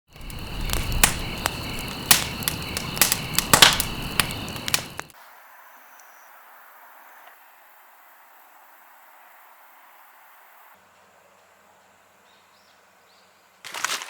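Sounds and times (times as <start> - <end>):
campfire crackling and popping: 0.1 - 5.1.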